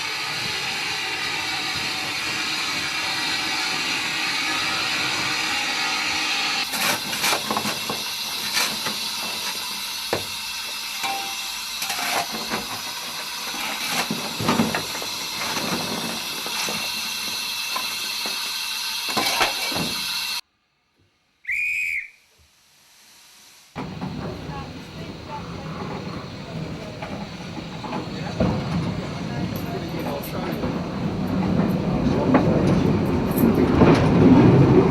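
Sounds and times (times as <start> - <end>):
steam hissing: 0.0 - 20.4, 21.5 - 34.9
steam whistle toot: 21.4 - 22.3.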